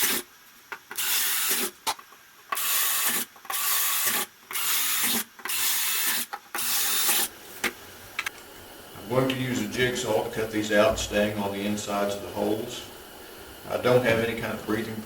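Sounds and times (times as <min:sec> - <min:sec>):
drill boring through wood: 0:00.9 - 0:01.7, 0:02.5 - 0:07.3.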